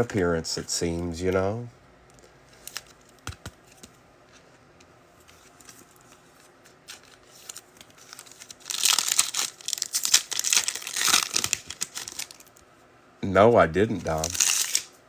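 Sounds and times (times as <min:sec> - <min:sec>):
foil wrapper crinkling: 0:06.8 - 0:12.6, 0:14.0 - 0:14.9.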